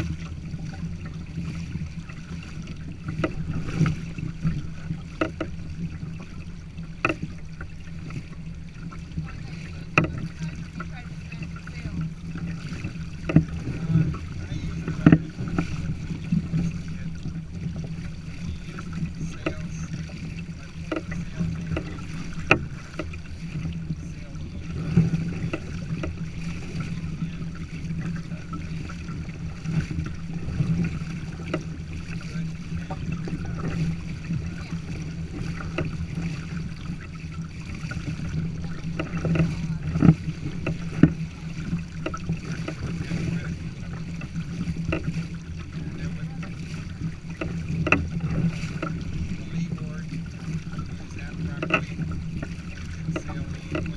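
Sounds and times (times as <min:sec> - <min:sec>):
water slapping along kayak hull: 0:00.0 - 0:53.9.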